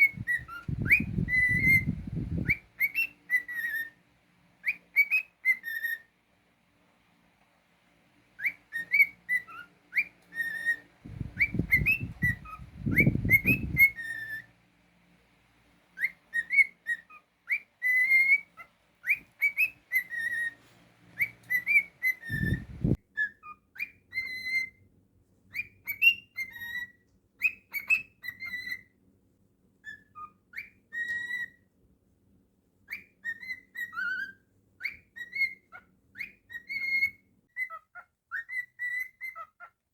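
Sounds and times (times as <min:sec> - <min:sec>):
cockatiel whistling: 0:00.0 - 0:04.0, 0:04.6 - 0:06.1, 0:08.4 - 0:14.5, 0:16.0 - 0:24.8, 0:25.5 - 0:28.9, 0:29.8 - 0:31.6, 0:32.9 - 0:39.7
low rumble of noise: 0:11.0 - 0:13.7.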